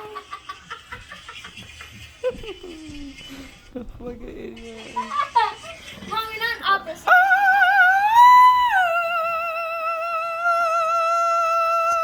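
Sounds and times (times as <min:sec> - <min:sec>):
person singing operatic note: 0:07.1 - 0:12.0.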